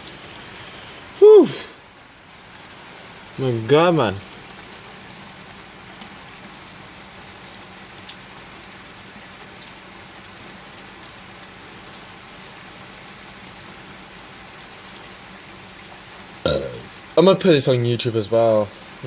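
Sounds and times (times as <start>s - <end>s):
rain hissing: 0.0s - 19.0s
raindrops ticking close by: 0.0s - 19.0s.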